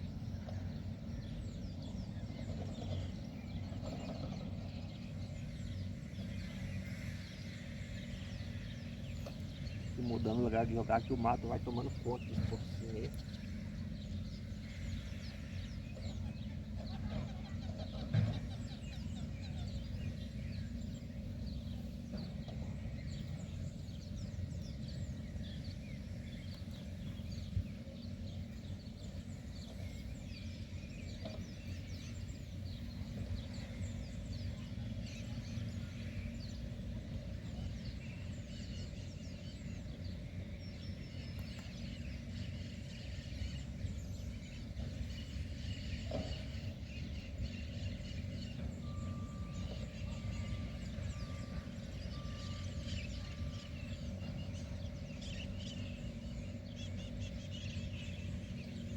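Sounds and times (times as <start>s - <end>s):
steady low rumble: 0.0s - 48.8s
birds chirping: 0.0s - 58.9s.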